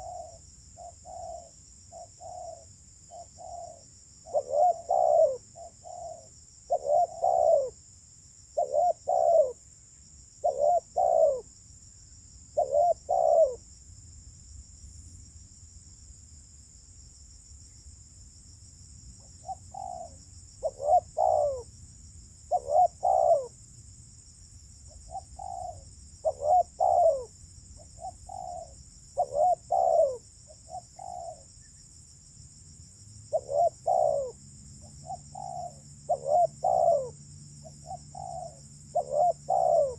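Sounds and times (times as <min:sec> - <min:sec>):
dove cooing: 0:00.0 - 0:07.8, 0:08.6 - 0:09.6, 0:10.4 - 0:11.5, 0:12.6 - 0:13.6, 0:19.4 - 0:21.7, 0:22.5 - 0:23.5, 0:25.1 - 0:27.3, 0:27.9 - 0:31.5, 0:33.3 - 0:34.4, 0:35.0 - 0:39.9.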